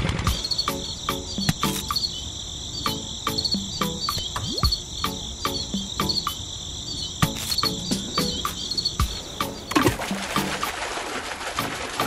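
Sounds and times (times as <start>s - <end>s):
crickets chirping: 0.2s - 11.4s
sharp clicks: 1.4s - 2.1s, 7.2s - 7.8s.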